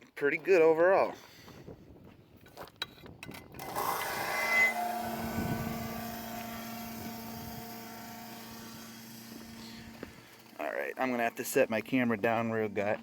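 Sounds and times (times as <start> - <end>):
motor humming: 3.6 - 10.6.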